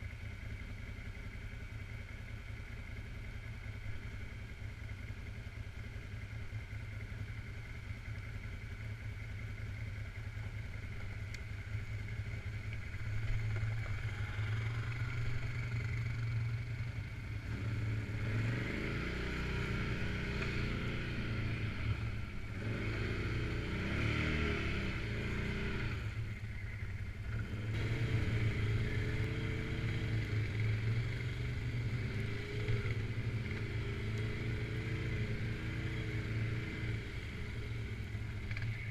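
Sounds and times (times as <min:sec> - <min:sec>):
atv engine revving: 0:11.4 - 0:38.9.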